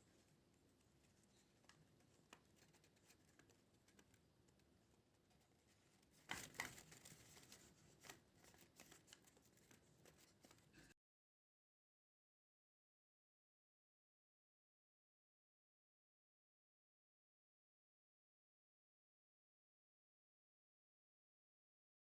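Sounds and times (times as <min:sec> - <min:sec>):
paper rustling: 0:05.2 - 0:11.0.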